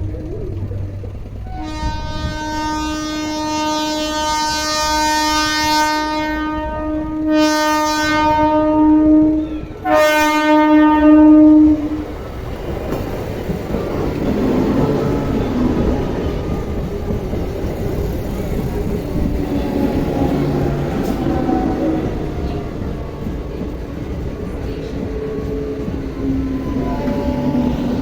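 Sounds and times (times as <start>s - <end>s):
train rumbling and clattering: 0.0s - 28.0s
train horn blast: 1.4s - 12.3s, 18.3s - 23.5s, 24.4s - 28.0s.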